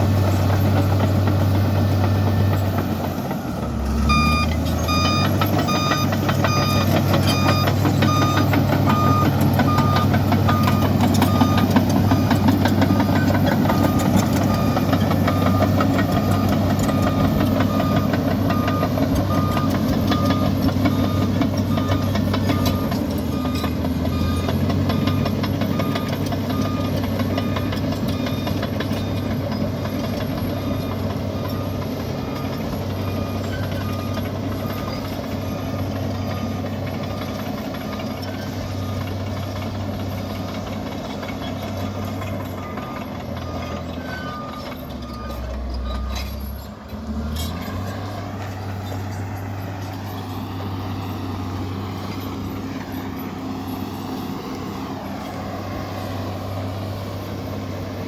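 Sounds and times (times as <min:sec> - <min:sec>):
bulldozer diesel engine running: 0:00.0 - 0:58.0
short beeps: 0:03.9 - 0:28.6, 0:42.6 - 0:46.6.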